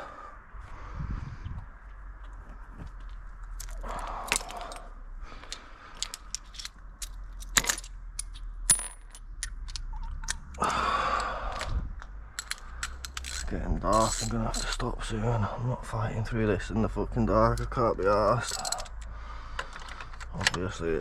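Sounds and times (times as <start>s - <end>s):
metal tools clinking: 3.6s - 10.6s, 12.3s - 15.0s, 17.5s - 20.7s.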